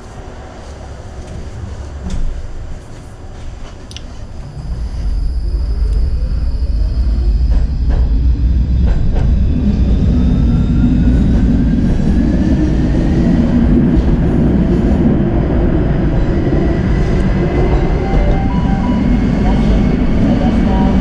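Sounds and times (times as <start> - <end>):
tram wheels rumbling on rails: 0.0 - 21.0
motor whine rising in pitch: 4.4 - 11.0.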